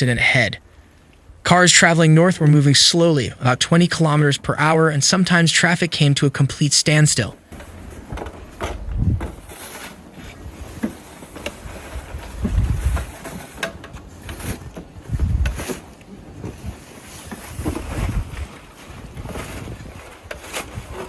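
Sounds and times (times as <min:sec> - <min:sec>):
steady outdoor hiss: 0:00.0 - 0:19.4
wind gusting against microphone: 0:07.8 - 0:09.6, 0:11.5 - 0:13.2, 0:14.0 - 0:21.0.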